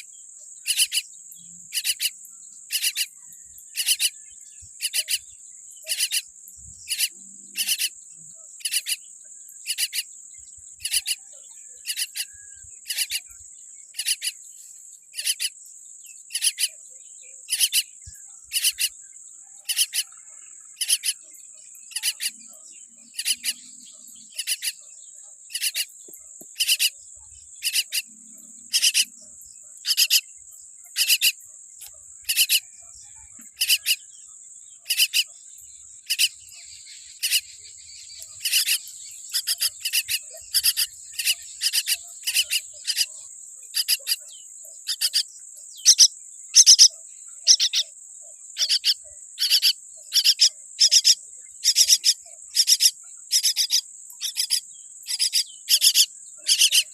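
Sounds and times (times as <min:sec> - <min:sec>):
bird chick begging calls: 0:45.8 - 0:46.9.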